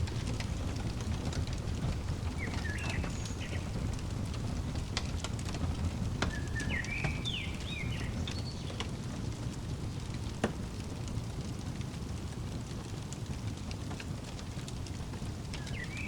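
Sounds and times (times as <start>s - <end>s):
wood fire crackling and popping: 0.0s - 16.0s
songbird chirping: 1.8s - 4.0s, 6.2s - 9.0s, 15.4s - 16.0s.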